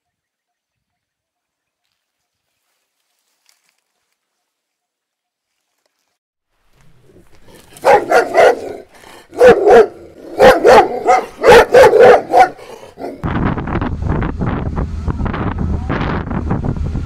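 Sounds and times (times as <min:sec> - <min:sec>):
dog barking: 0:07.8 - 0:13.2
steady rushing noise: 0:13.1 - 0:17.0.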